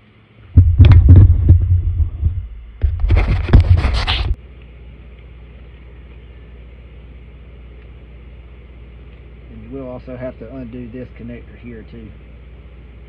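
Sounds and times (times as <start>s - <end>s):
steady low hum: 0.0s - 13.0s
knocks and thumps: 0.6s - 4.4s
scraping and rustling: 0.8s - 4.4s.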